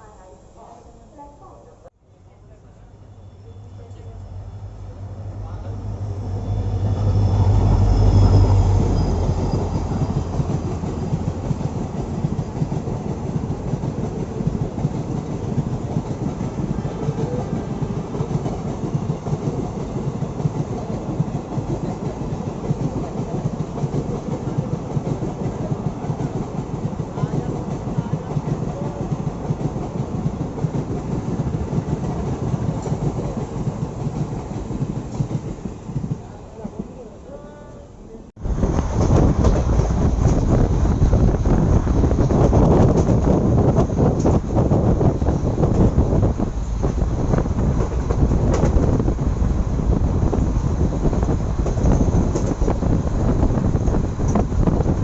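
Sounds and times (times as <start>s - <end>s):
train wheels clattering on rails: 6.1s - 36.9s, 38.4s - 55.0s
heavy low rumble: 38.3s - 55.0s.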